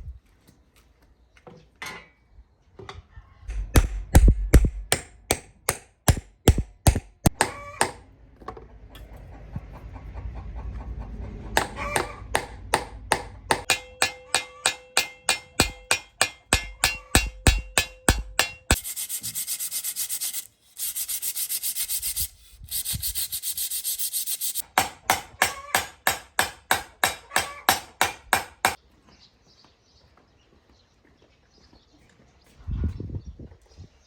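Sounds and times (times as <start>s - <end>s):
rhythmic scraping strokes: 13.6s - 24.6s
fast hissing: 18.8s - 24.6s.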